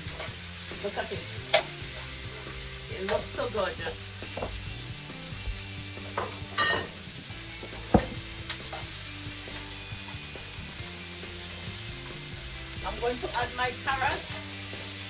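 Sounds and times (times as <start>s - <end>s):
vegetables sizzling in a pan: 0.0s - 15.0s
sharp knock: 7.9s - 8.2s.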